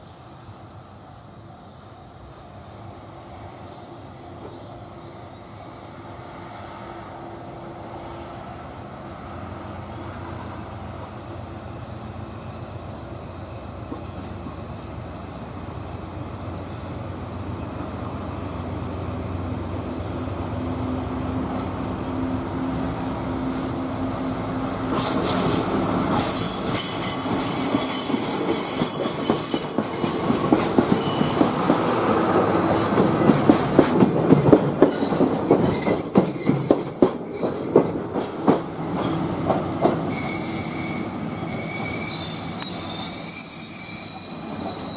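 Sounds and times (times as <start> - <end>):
train pulling into station: 0.0 - 44.9
train wheel squeal: 24.9 - 33.9, 34.8 - 44.9
wheels clacking over rail joints: 24.9 - 40.2.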